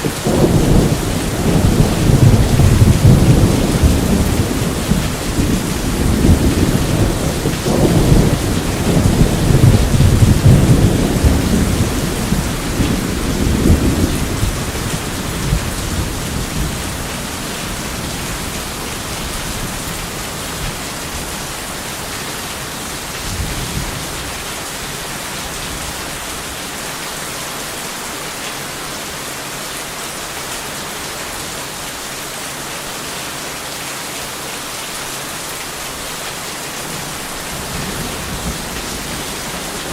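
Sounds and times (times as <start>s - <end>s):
steady rain: 0.0s - 39.9s
rolling thunder rumble: 0.1s - 21.3s, 37.0s - 39.9s.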